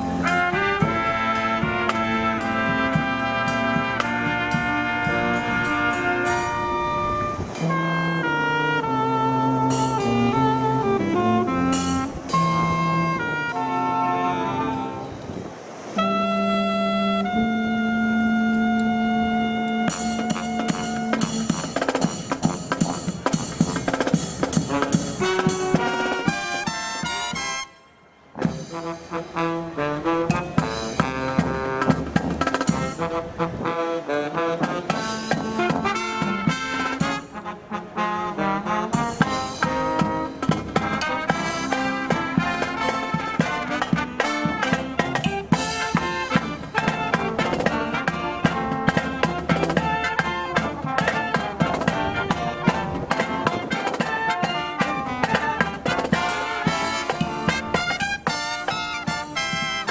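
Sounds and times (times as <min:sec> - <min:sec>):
steady drumbeat: 0:00.0 - 0:06.7, 0:19.9 - 0:27.5, 0:28.4 - 0:29.4, 0:30.3 - 0:33.4, 0:34.6 - 0:37.5, 0:38.9 - 0:59.9
brass band playing: 0:00.0 - 0:59.9.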